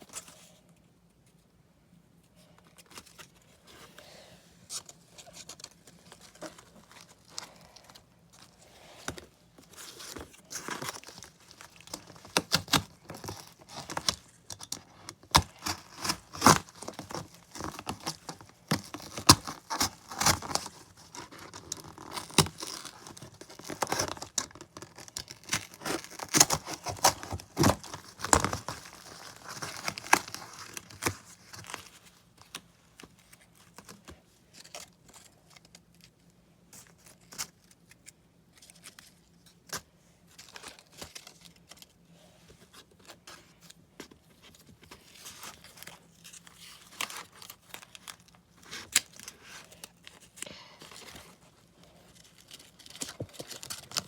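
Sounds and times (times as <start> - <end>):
tape and cardboard tearing: 9.8 - 31.8.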